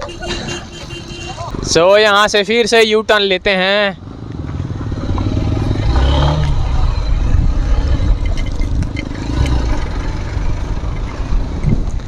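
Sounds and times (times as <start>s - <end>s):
wind on microphone: 4.9s - 12.0s.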